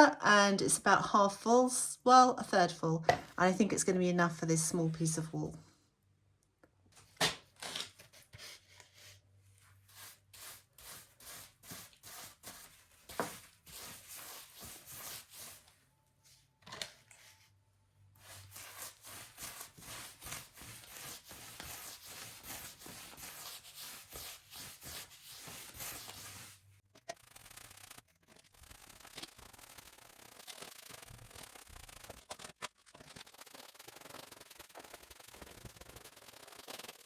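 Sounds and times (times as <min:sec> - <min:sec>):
scratchy rubbing on wall: 0:07.8 - 0:15.7, 0:18.2 - 0:37.0.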